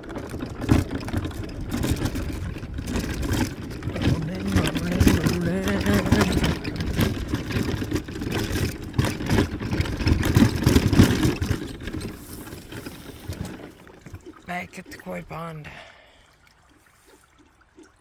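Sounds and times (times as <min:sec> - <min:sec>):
vehicle rumbling over bumpy ground: 0:00.0 - 0:14.2.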